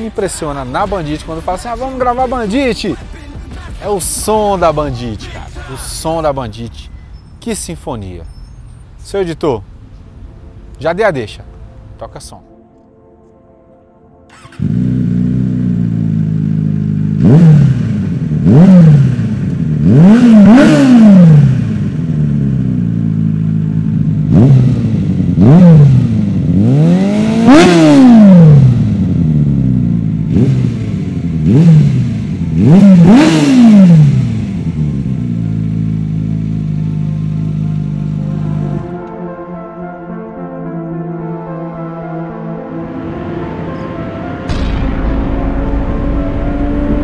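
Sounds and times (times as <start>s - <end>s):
motorcycle engine idling and revving: 14.3s - 38.9s, 44.5s - 47.0s.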